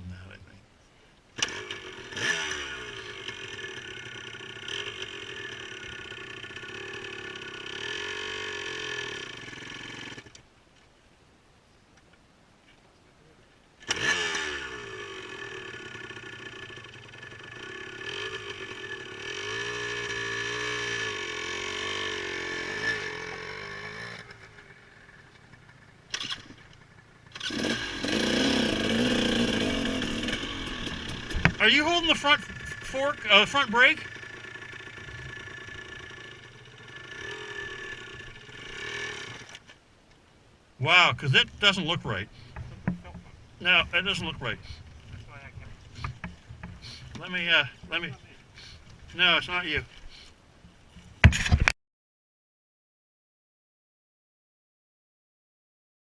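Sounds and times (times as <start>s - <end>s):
motorcycle engine running: 1.4s - 10.4s, 13.9s - 39.6s, 41.9s - 48.8s.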